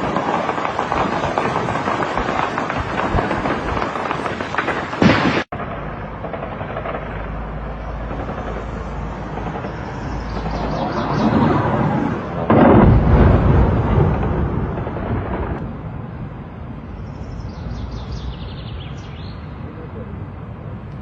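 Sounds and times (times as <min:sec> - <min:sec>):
explosion boom: 0:00.0 - 0:16.0.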